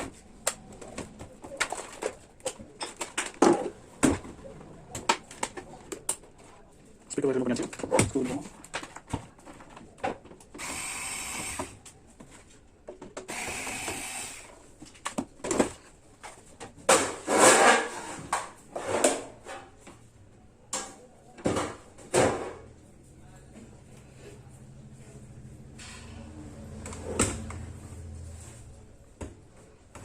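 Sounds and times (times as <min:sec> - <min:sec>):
knocks and clatter of parts: 0:00.0 - 0:06.3.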